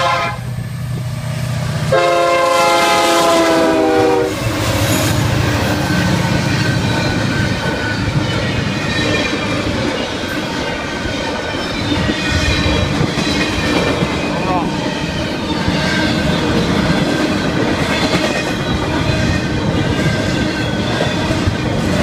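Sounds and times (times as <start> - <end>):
locomotive air horn: 0.0 - 0.6, 1.9 - 4.5
train rumbling and clattering by: 0.0 - 22.0.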